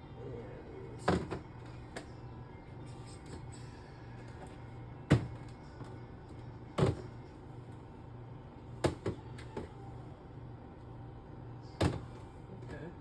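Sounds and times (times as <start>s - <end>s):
groceries clunking in refrigerator: 1.0s - 1.8s, 4.2s - 5.6s, 6.7s - 7.2s, 8.8s - 9.8s, 11.8s - 12.9s.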